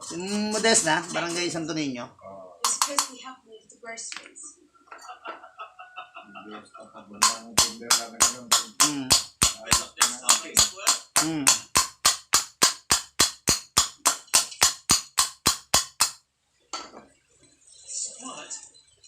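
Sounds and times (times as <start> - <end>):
rapid sharp taps: 7.2 - 16.2.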